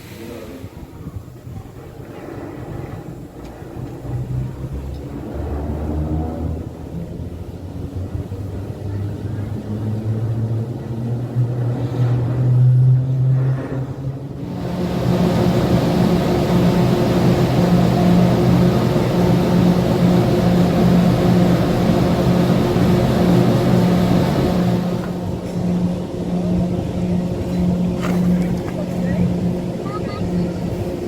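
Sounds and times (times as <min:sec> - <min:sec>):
aerial tramway mechanical hum: 0:00.0 - 0:31.0.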